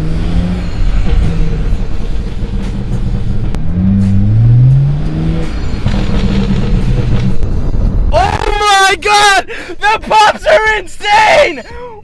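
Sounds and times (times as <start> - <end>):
car engine revving: 0.0 - 8.4
exhaust crackles and pops: 1.0 - 9.0.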